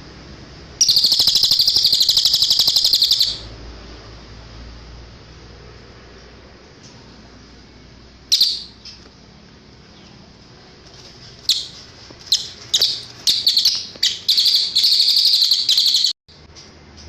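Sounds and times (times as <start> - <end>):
songbird calling: 0.8 - 3.5, 8.3 - 9.1, 11.4 - 16.2.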